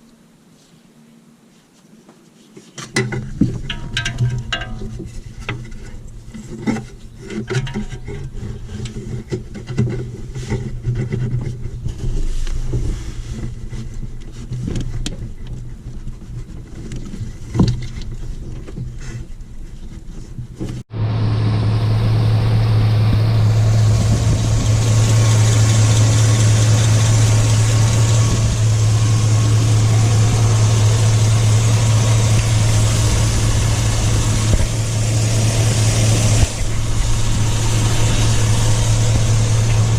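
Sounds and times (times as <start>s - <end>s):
truck engine running: 20.9s - 39.9s.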